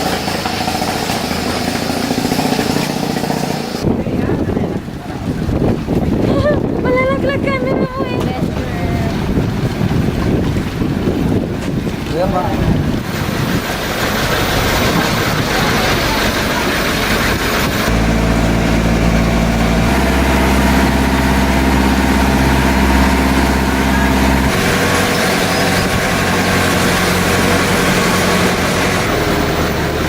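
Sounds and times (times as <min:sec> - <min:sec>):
engine humming: 0:00.0 - 0:04.0, 0:13.7 - 0:30.0.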